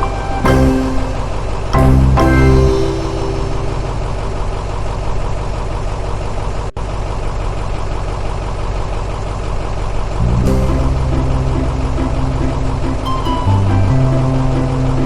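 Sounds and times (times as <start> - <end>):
musical notes: 0.0 - 4.8, 10.4 - 15.0
engine running steadily: 3.8 - 15.0.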